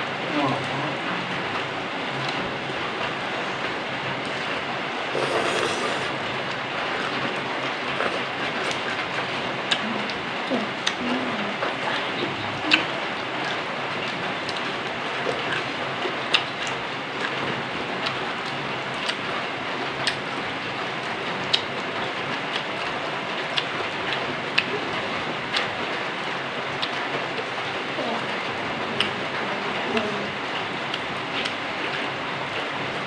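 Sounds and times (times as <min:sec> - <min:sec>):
chewing crunchy food: 0:05.1 - 0:11.0, 0:12.6 - 0:17.4, 0:20.0 - 0:20.2, 0:26.7 - 0:27.5.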